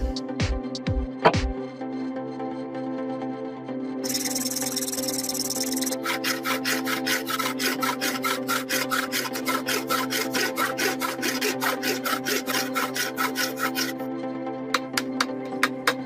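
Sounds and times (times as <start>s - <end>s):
hand tool rubbing wood: 4.0s - 14.0s.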